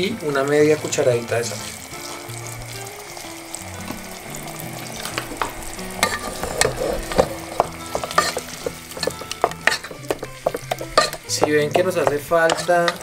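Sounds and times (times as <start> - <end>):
sauce sizzling in a pot: 0.0 - 13.0
spatula scraping and knocking pot: 5.1 - 13.0.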